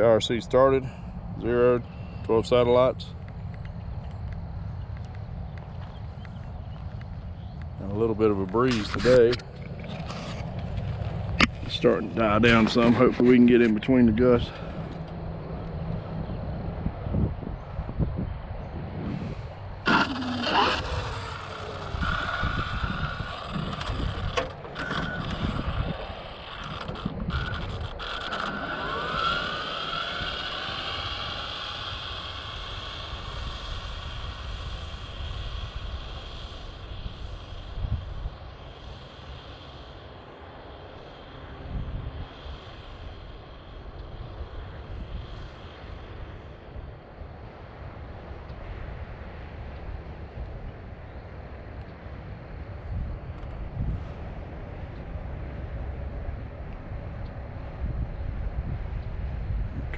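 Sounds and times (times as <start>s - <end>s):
wind noise on microphone: 0.0s - 59.9s
electric motor whining: 19.8s - 36.1s.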